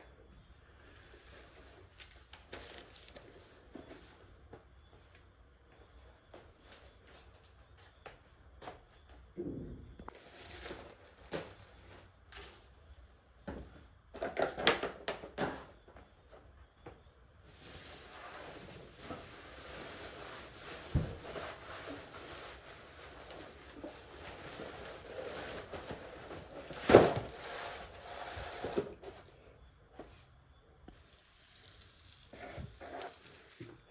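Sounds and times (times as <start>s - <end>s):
steady hiss: 17.3s - 29.8s, 30.9s - 33.9s.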